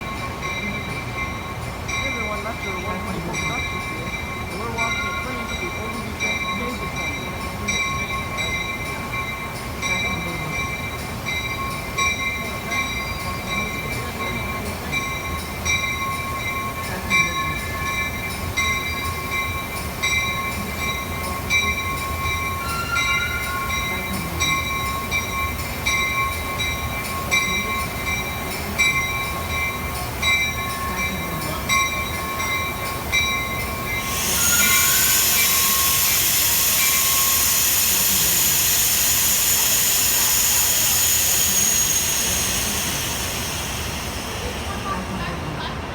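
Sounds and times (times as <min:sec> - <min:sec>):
train wheels squealing: 0:03.7 - 0:45.9
loud hiss: 0:33.8 - 0:45.9.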